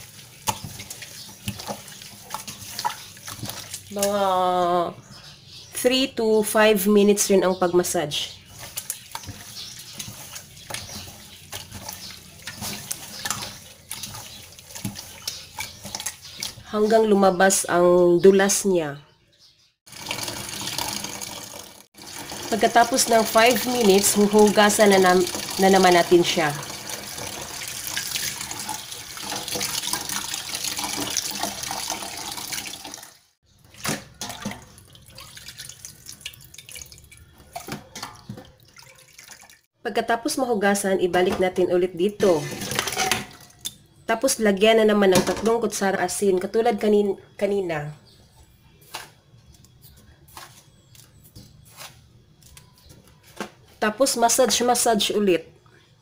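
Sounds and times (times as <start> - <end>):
wet squelching of kneaded intestines: 0.0 - 4.3, 8.3 - 16.7
water sloshing and splashing: 0.0 - 4.4, 7.9 - 17.2, 19.9 - 39.7, 42.2 - 43.8
tap water running into pot: 19.9 - 39.6.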